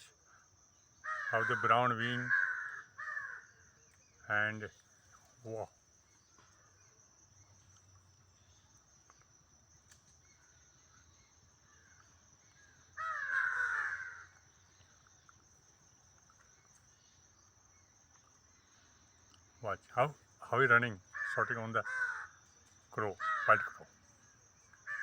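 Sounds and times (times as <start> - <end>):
crow cawing: 1.0 - 3.6, 12.7 - 14.5, 21.1 - 22.4, 23.0 - 23.9, 24.8 - 25.0.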